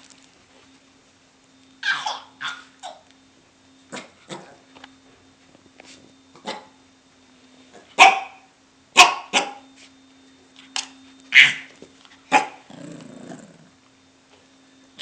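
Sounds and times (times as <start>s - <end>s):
puppy barking: 1.8s - 3.0s, 6.4s - 6.8s, 8.0s - 9.6s, 11.3s - 11.7s, 12.3s - 12.7s
puppy growling: 3.9s - 4.7s, 12.3s - 13.8s.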